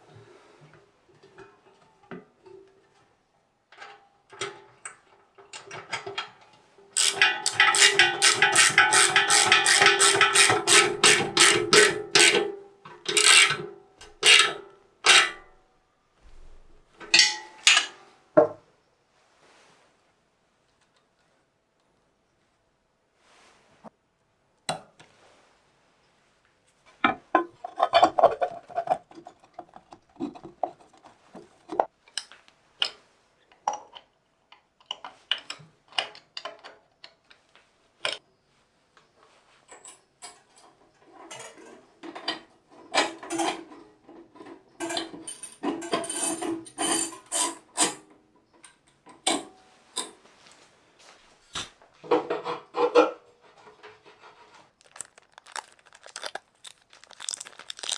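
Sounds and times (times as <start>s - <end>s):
metal scraping and rubbing: 7.0s - 12.5s, 13.1s - 13.6s
metal tools clinking: 7.0s - 12.5s, 13.1s - 13.6s.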